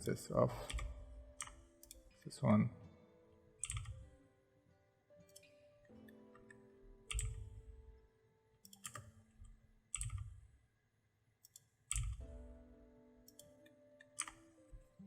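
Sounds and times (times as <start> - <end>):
mouse and keyboard clicks: 3.6 - 4.0, 6.4 - 7.6, 9.9 - 10.3, 11.4 - 12.3, 13.3 - 14.5.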